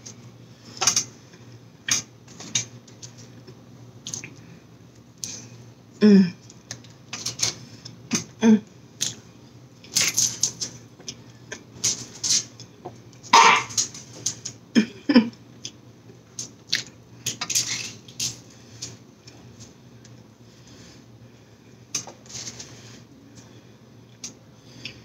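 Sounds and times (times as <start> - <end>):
chewing with mouth clicks: 4.0 - 4.4.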